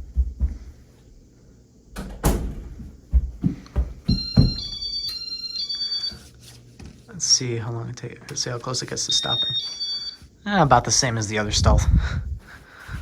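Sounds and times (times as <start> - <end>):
door thumping shut: 2.0 - 2.8
high electronic tone pattern: 9.1 - 10.2.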